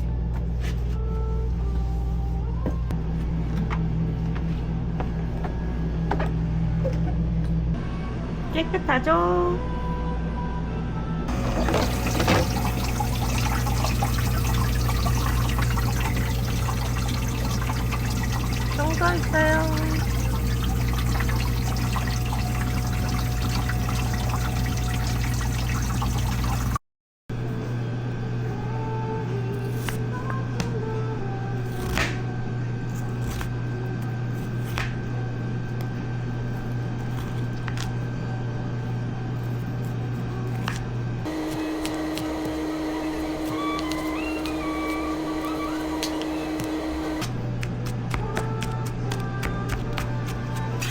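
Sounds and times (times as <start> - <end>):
low machine hum: 0.0 - 26.8, 27.4 - 50.9
low hum: 11.2 - 26.8
water pouring and splashing: 11.3 - 26.8.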